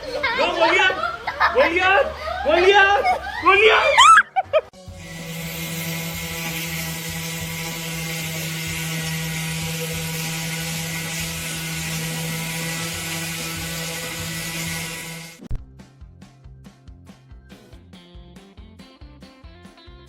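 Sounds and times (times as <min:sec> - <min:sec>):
motor humming: 0:04.8 - 0:15.5.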